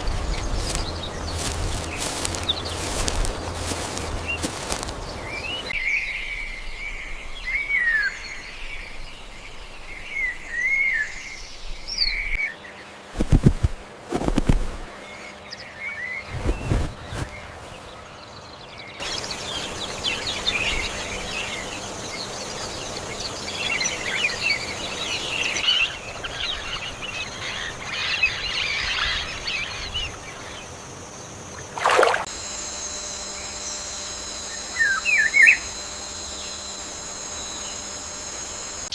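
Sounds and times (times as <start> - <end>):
birds calling and chirping: 0.0 - 38.9.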